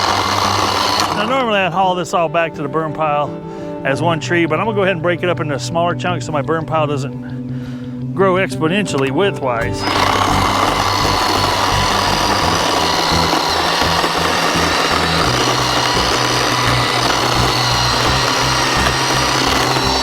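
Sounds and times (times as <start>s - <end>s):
electric chainsaw cutting wood: 0.0s - 1.7s, 9.6s - 20.0s.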